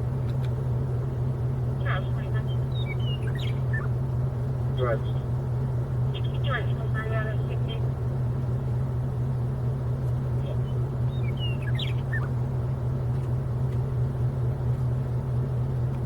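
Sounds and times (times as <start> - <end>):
vehicle engine idling: 0.0 - 16.0
bird chirps: 2.4 - 4.0, 10.5 - 12.4.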